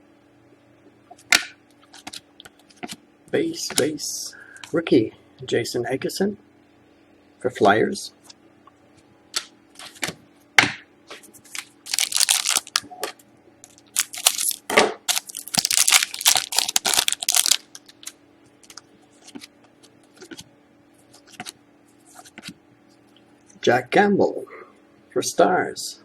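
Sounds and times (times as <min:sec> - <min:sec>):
trading cards shuffled by hand: 0:01.8 - 0:03.0, 0:11.1 - 0:22.6.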